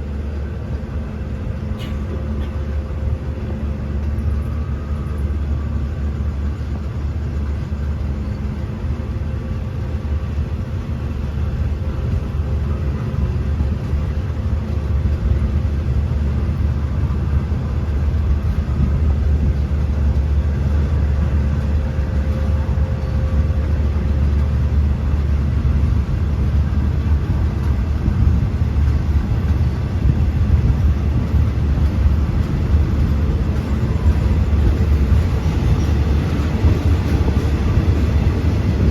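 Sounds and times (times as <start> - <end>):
train rumbling: 0.0 - 38.9.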